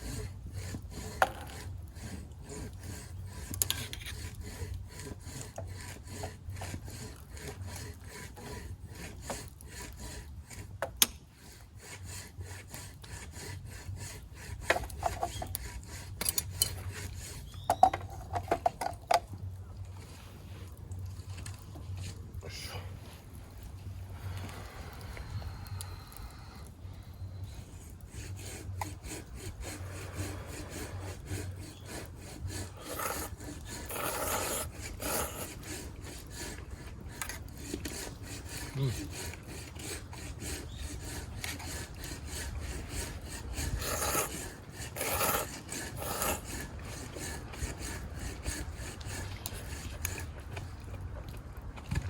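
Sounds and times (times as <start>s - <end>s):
noodles being slurped: 28.9s - 52.0s.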